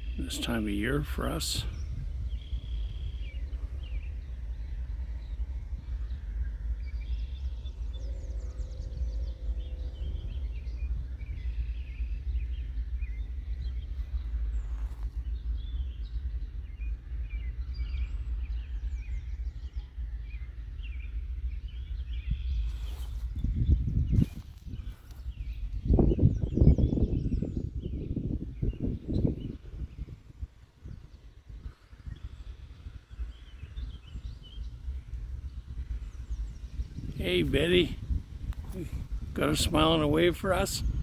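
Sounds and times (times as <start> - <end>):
birds chirping and calling: 0.0 - 16.2, 31.7 - 41.0
low buzzy bird call: 0.0 - 30.2, 30.8 - 41.0
steady low rumble: 0.0 - 41.0.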